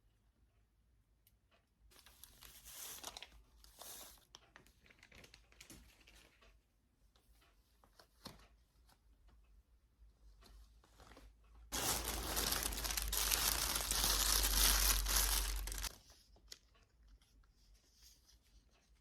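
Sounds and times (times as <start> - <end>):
rustling and crinkling: 1.9 - 6.6, 10.4 - 19.0.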